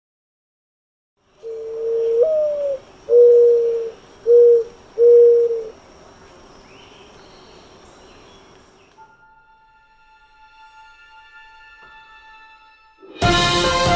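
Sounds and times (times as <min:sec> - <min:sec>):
mourning dove cooing: 0:01.4 - 0:09.0
faint bird chirps: 0:01.4 - 0:09.1.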